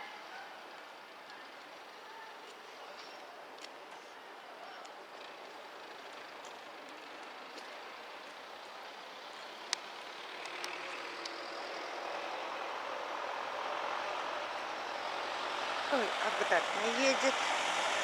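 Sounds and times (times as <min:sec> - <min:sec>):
watering truck running: 0:05.2 - 0:18.0.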